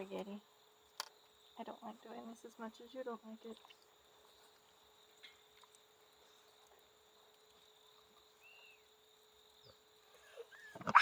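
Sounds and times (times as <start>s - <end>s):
thin high insect drone: 0.0s - 11.0s.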